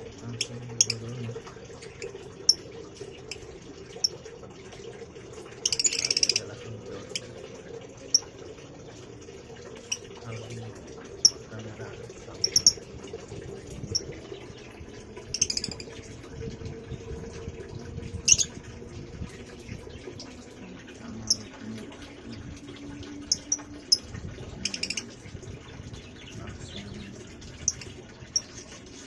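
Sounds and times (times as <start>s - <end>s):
birds chirping: 0.0s - 29.0s
low steady hum: 0.0s - 29.0s.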